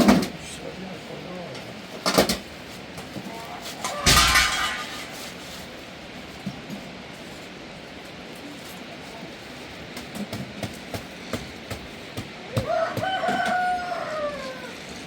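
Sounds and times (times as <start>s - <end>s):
rooster crowing: 3.8s - 5.0s, 12.5s - 15.0s.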